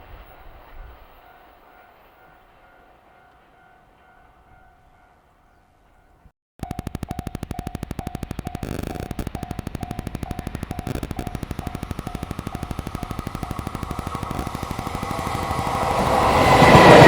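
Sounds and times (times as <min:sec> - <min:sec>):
level-crossing warning bell: 0:09.6 - 0:17.0
train rattle: 0:14.2 - 0:17.0.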